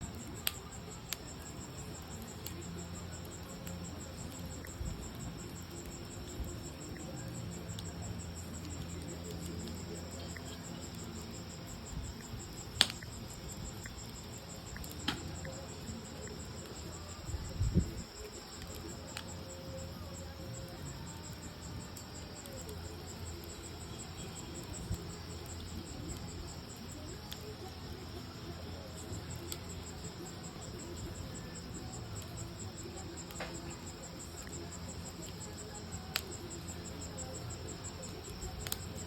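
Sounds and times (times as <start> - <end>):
crickets chirping: 0.0 - 39.0
wood fire crackling: 0.0 - 39.0.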